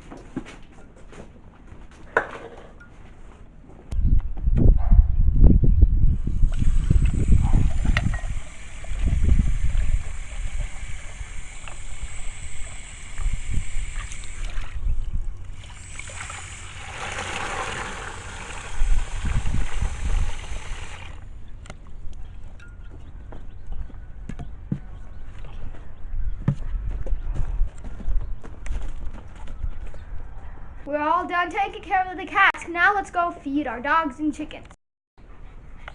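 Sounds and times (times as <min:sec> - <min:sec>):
wind rumble on microphone: 0:03.9 - 0:12.3, 0:18.6 - 0:30.8
water running from a hose: 0:06.2 - 0:21.3.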